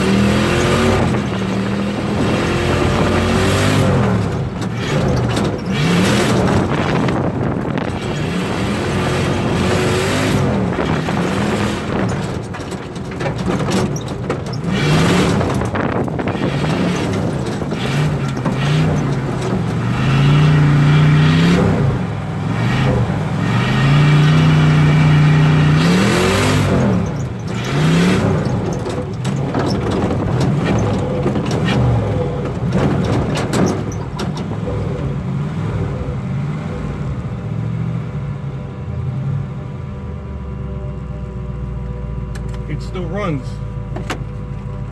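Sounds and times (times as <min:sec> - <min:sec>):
engine revving hard: 0:00.0 - 0:12.4, 0:14.6 - 0:36.6.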